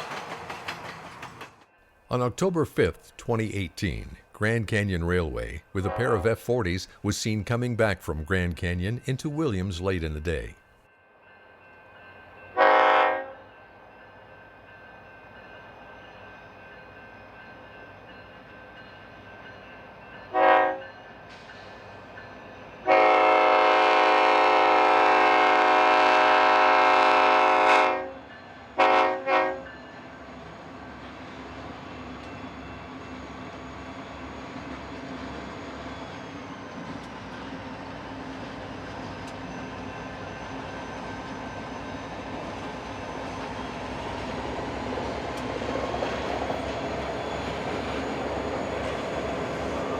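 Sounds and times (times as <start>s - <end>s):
diesel train rumble: 0.0s - 10.6s, 14.8s - 49.9s
locomotive air horn: 5.8s - 6.3s, 12.6s - 13.4s, 20.3s - 20.8s, 22.9s - 28.2s, 28.8s - 29.7s.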